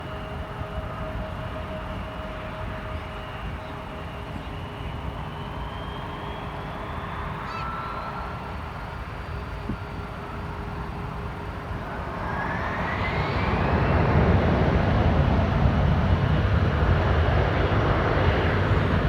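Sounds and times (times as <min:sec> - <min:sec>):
jet engine noise: 0:00.0 - 0:19.0
faint rising whine: 0:04.6 - 0:19.0.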